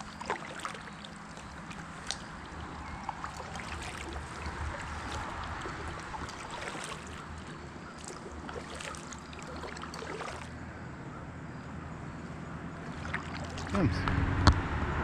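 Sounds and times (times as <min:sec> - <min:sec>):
river water rushing: 0:00.0 - 0:10.6, 0:12.8 - 0:14.0
paddle splashes and drips: 0:00.0 - 0:10.8, 0:12.7 - 0:13.8.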